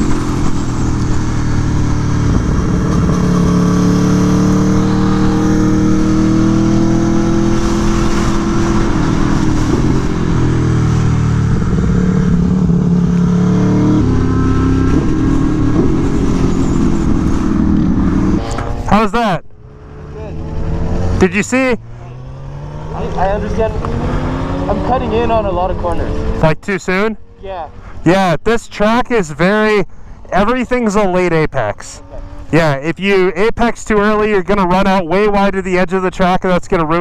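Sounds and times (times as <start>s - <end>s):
motorcycle engine revving: 0.0s - 28.0s, 31.8s - 32.8s.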